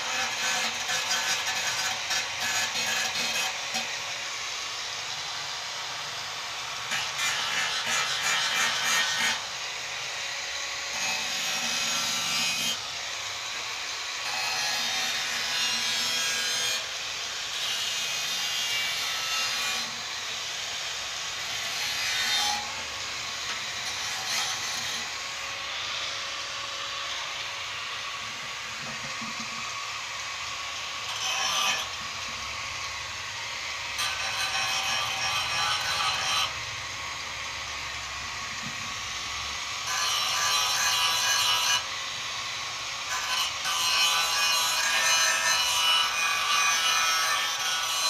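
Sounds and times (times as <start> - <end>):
sanding strokes on metal: 0.0 - 32.5, 33.8 - 36.6, 39.4 - 48.0.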